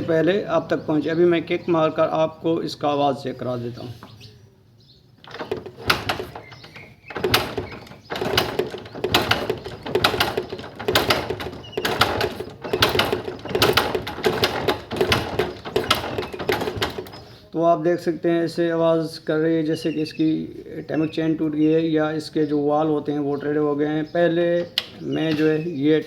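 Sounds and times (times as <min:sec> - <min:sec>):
motorcycle engine clattering rattle: 0:05.2 - 0:17.5.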